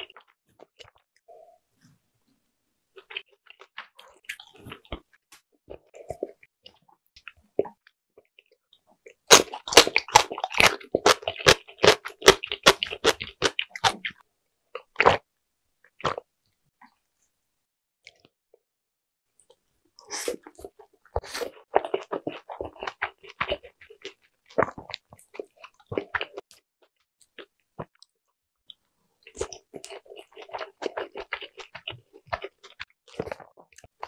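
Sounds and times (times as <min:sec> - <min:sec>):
chewing with wet smacks: 0:20.4 - 0:34.0.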